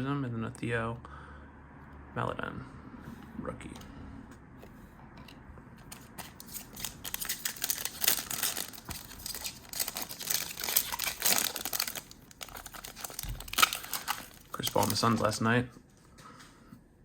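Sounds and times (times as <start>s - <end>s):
foil wrapper crinkling and tearing: 6.2s - 15.4s.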